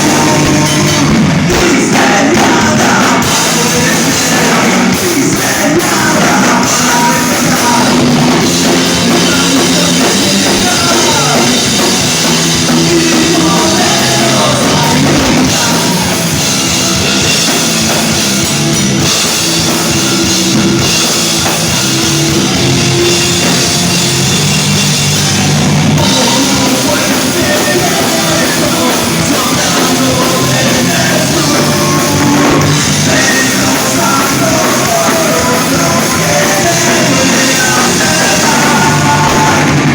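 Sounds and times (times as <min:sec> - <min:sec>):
person singing: 0:00.0 - 0:16.8, 0:26.0 - 0:39.9
drum kit: 0:00.0 - 0:39.9
rock band playing live: 0:00.0 - 0:39.9.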